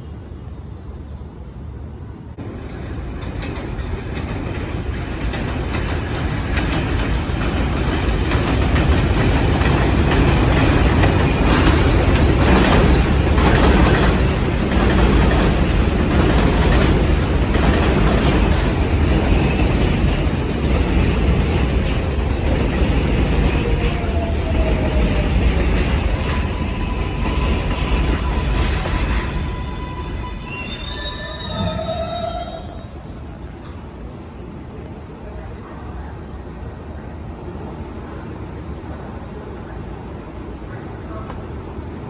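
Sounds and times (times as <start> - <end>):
subway train rumbling: 0.0 - 42.0
wheels clattering over rail joints: 2.8 - 31.0.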